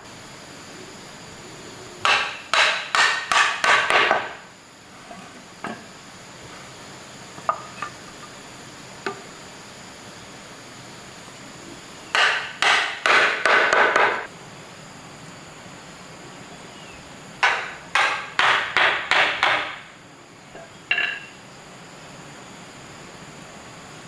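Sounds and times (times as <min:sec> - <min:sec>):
hammer striking wood: 0:02.0 - 0:04.4, 0:12.1 - 0:14.3, 0:17.4 - 0:19.9.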